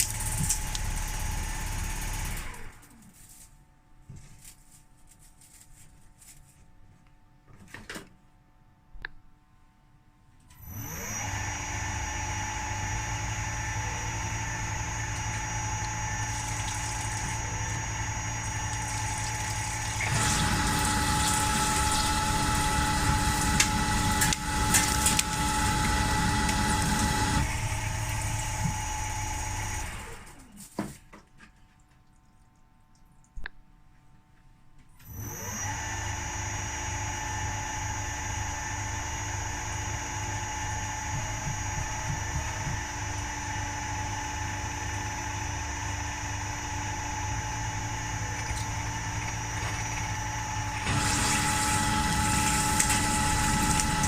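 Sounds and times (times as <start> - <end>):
milling machine spindle whine: 10.7 - 30.4, 43.5 - 54.0.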